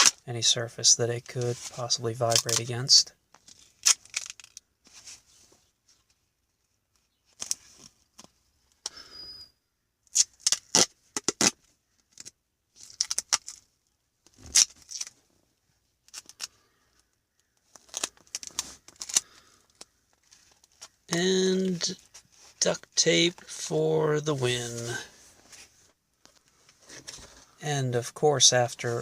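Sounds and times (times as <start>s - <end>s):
duct tape ripping: 0.0s - 0.2s, 3.5s - 4.6s, 10.1s - 13.6s, 14.3s - 15.2s, 17.8s - 20.9s.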